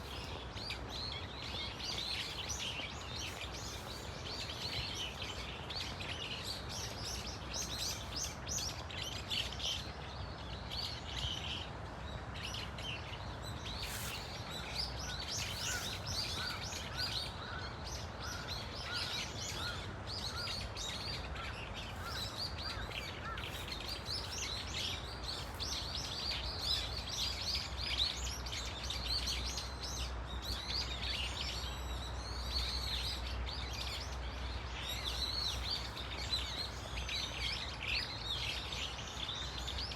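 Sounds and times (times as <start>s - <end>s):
birds chirping and squealing: 13.7s - 17.7s.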